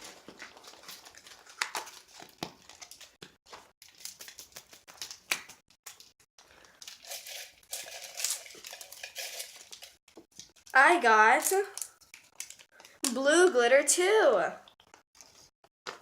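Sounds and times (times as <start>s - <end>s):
crinkling and rustling: 0.0s - 13.0s.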